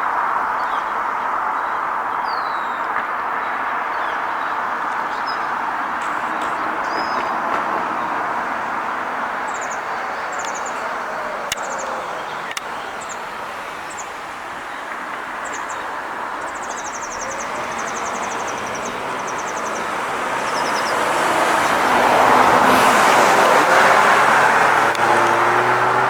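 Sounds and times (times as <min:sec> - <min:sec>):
road traffic noise: 0:00.0 - 0:26.0
car approaching: 0:00.1 - 0:26.0
small bird chirping: 0:15.4 - 0:21.9.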